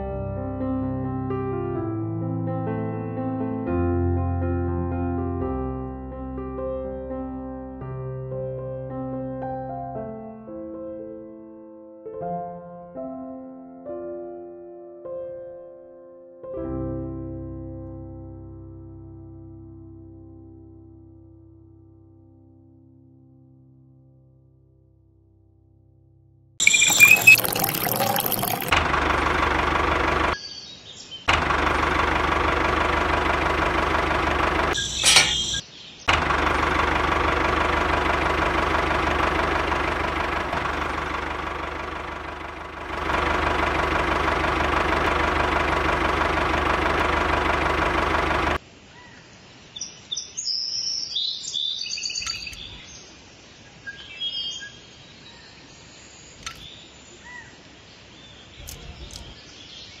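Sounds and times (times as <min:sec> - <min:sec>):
birds chirping: 0:26.6 - 0:28.7, 0:34.7 - 0:36.1, 0:49.0 - 1:00.0
model tractor engine humming: 0:28.7 - 0:30.4, 0:31.3 - 0:48.6.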